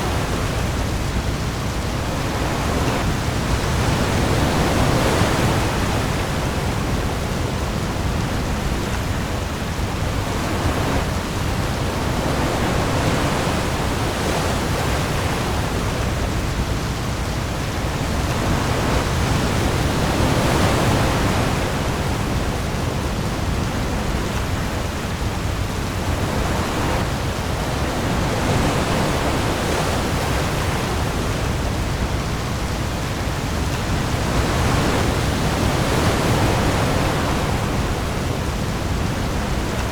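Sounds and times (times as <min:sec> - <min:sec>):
heavy rain on the sea: 0:00.0 - 0:39.9
waves: 0:00.0 - 0:39.9.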